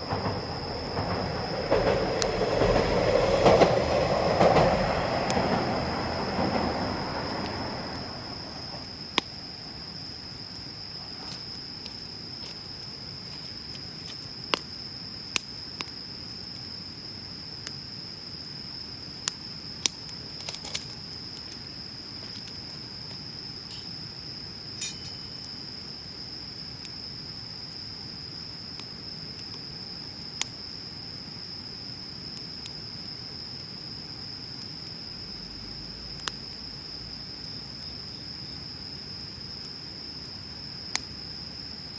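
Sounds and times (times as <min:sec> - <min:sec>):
bonfire hissing: 0:00.0 - 0:41.9
insects trilling: 0:00.0 - 0:41.9
burning wood crackling and popping: 0:07.4 - 0:36.8.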